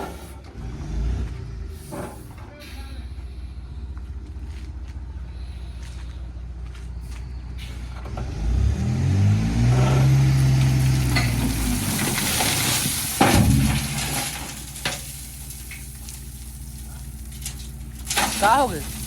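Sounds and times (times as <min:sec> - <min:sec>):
diesel engine revving: 0:00.0 - 0:19.0
gravel dumped into truck bed: 0:09.0 - 0:19.0.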